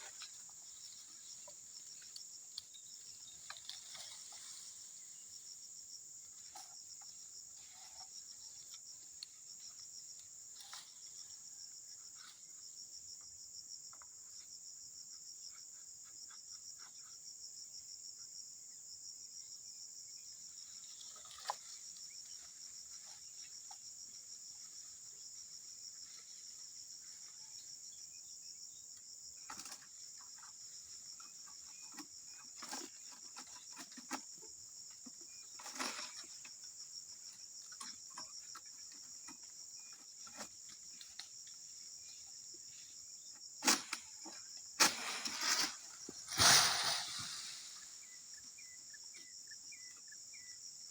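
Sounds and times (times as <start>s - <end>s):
high-pitched insect chorus: 0.0s - 50.9s.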